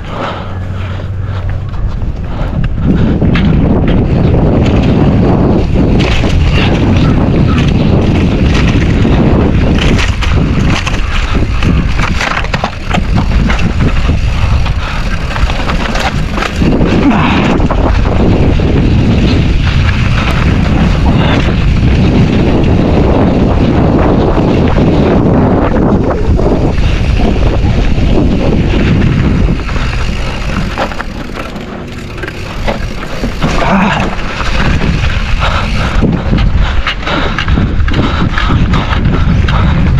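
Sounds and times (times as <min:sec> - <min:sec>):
bike clattering over bumps: 0:00.0 - 0:39.9
tyres rolling on dirt: 0:00.0 - 0:39.9
wind buffeting microphone: 0:00.0 - 0:39.9.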